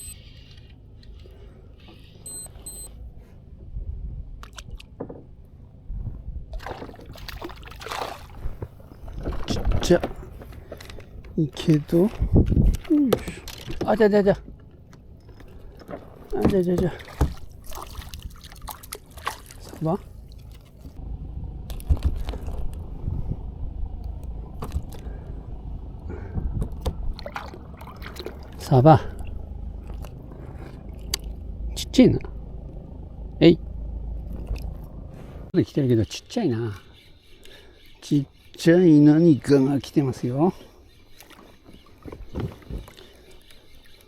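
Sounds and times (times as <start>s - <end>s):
wind rumble on microphone: 3.0s - 7.7s, 8.3s - 13.1s, 20.1s - 35.5s
water splashing against hull: 4.2s - 35.5s, 39.4s - 44.0s.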